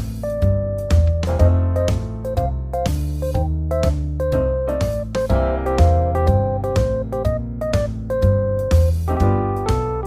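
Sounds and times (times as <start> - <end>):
piano and keyboard tune: 0.0 - 10.0
steady bass line: 0.0 - 10.0.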